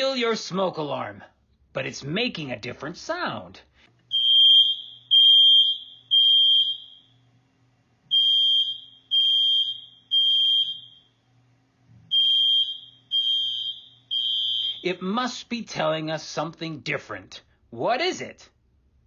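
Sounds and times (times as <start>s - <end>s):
smoke alarm beeps: 4.1s - 7.2s, 8.1s - 11.2s, 12.1s - 15.0s.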